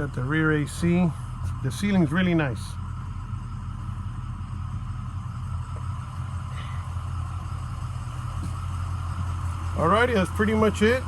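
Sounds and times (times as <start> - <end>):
bus diesel engine idling: 0.0 - 11.0.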